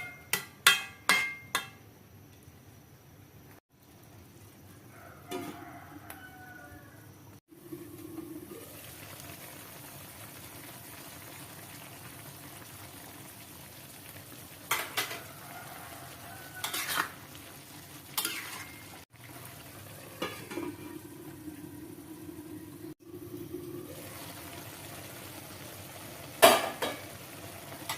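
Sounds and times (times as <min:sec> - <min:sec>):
food sizzling in a pan: 0:07.5 - 0:27.9
metal spatula scraping pan: 0:16.6 - 0:17.2, 0:18.2 - 0:19.0.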